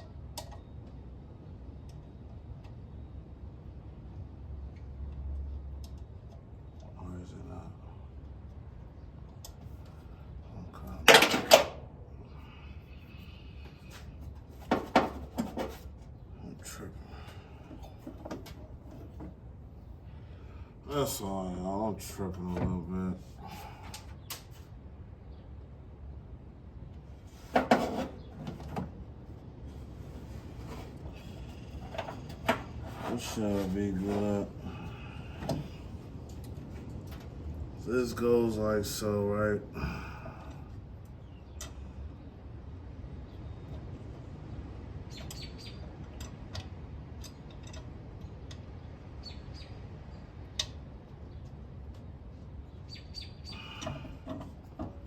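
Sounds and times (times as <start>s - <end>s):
low steady hum: 0.0s - 55.0s
small birds chirping: 41.0s - 42.5s, 45.0s - 46.3s, 48.2s - 54.2s.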